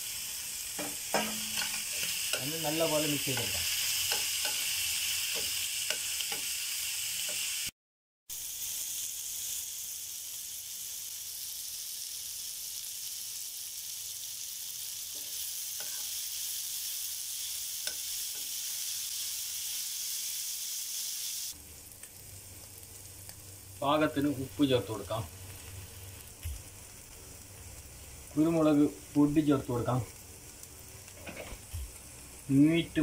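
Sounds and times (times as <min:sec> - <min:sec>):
food sizzling in a frying pan: 0:00.0 - 0:33.0
spoon scraping a pan: 0:00.8 - 0:06.6, 0:15.1 - 0:16.2, 0:31.1 - 0:31.7.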